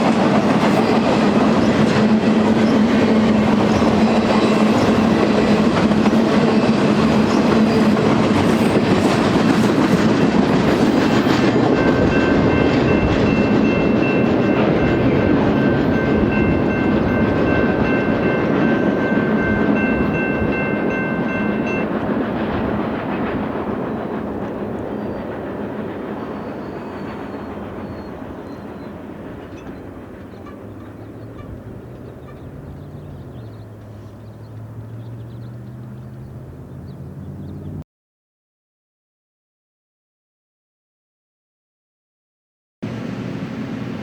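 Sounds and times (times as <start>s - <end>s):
freight train rumbling past: 0.0s - 37.8s, 42.8s - 44.0s
wheels clattering on rail: 0.0s - 37.8s.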